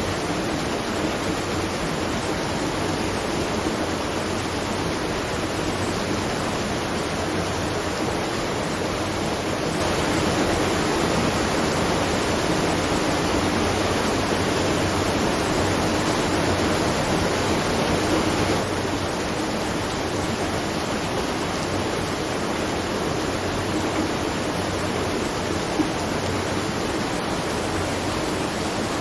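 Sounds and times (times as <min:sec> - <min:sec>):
water rushing at a watermill: 0:00.0 - 0:29.0.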